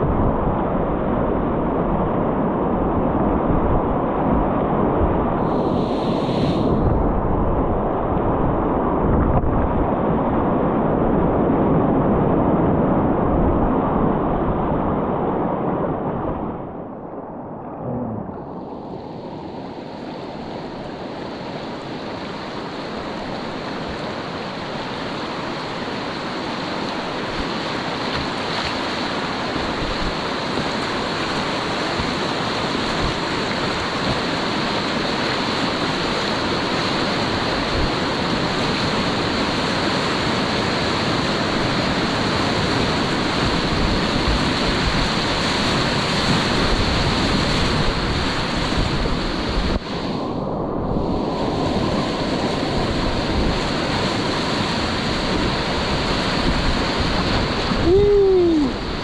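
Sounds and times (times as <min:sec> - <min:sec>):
wind on microphone: 0:00.0 - 0:59.0
river water rushing: 0:17.8 - 0:50.4, 0:51.0 - 0:59.0.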